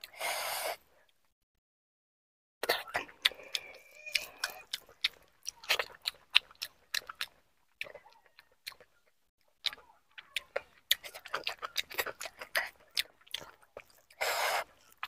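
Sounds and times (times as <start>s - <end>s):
person chewing: 2.6s - 15.0s.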